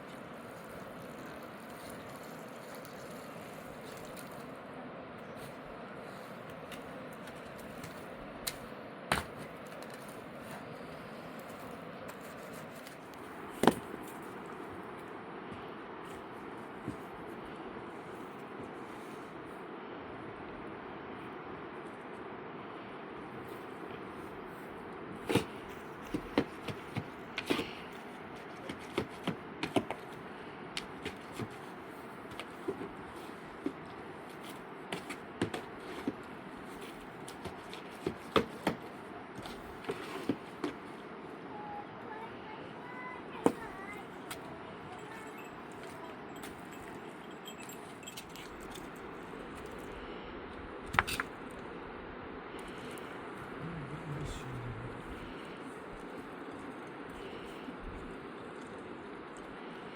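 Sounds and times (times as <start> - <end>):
steady background hiss: 38.4 - 59.9.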